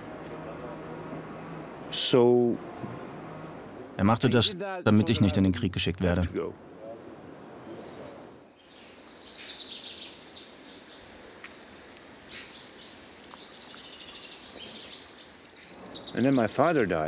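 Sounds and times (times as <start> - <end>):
faint background hiss: 0.0 - 17.0
songbirds chirping and trilling: 6.6 - 17.0.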